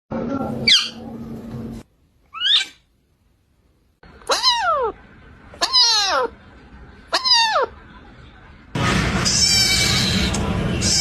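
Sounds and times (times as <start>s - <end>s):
cat meowing: 4.3s - 5.0s, 9.4s - 11.0s.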